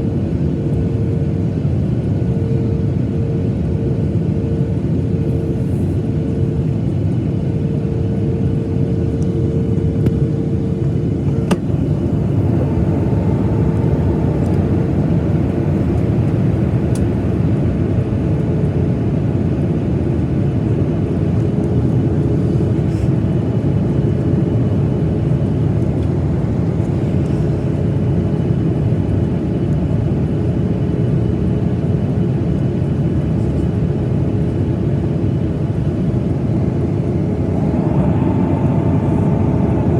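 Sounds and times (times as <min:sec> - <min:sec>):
airplane cabin airflow and engines: 0:00.0 - 0:39.9.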